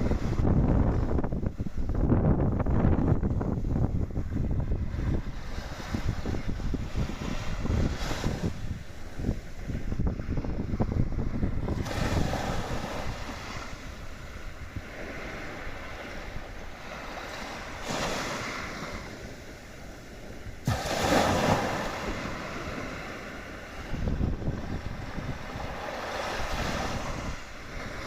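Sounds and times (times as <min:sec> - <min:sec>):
waves washing on shore: 0:00.0 - 0:28.0
wind buffeting microphone: 0:00.0 - 0:28.0.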